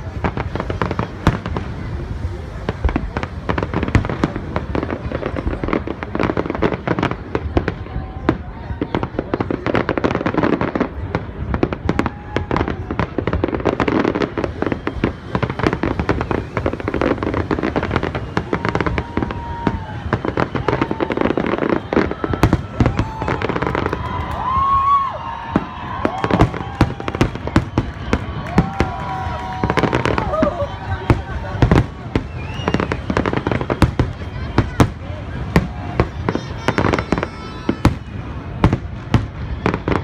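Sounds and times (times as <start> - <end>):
fireworks bangs and crackling: 0.0 - 40.0
firework whistling tones: 11.8 - 40.0.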